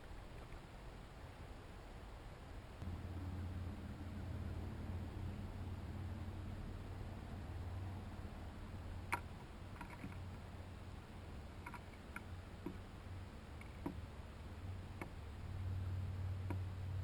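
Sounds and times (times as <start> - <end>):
steady low hum: 0.0 - 17.0
birds tapping at seed feeder: 9.1 - 10.4, 11.5 - 12.8, 13.6 - 14.0.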